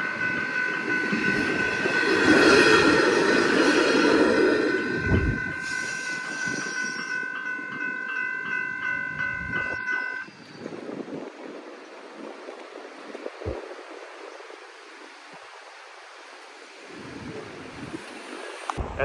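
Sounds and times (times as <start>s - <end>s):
diesel railcar rumble: 0.0s - 11.5s
level crossing bell ringing: 4.8s - 10.3s.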